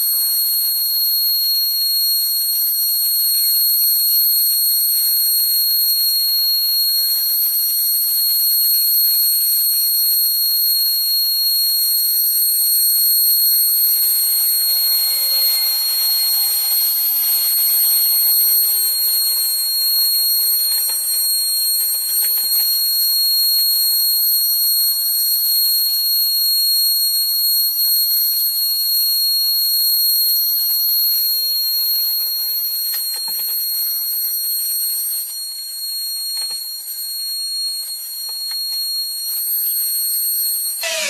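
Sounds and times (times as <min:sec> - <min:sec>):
cutting hiss: 0:13.2 - 0:22.9, 0:40.6 - 0:41.0
router spindle whining: 0:40.8 - 0:41.0.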